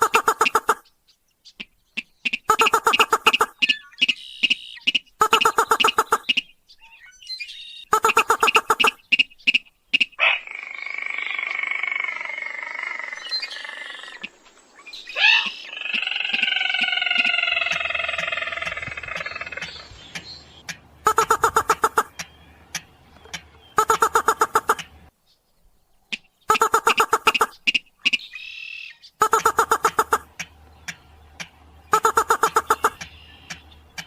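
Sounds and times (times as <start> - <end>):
fast clicking bird call: 0.0 - 0.9, 1.6 - 6.5, 8.0 - 12.3, 15.3 - 25.0, 26.1 - 28.5, 29.2 - 34.0
long descending bird calls: 1.5 - 25.1, 26.1 - 34.0.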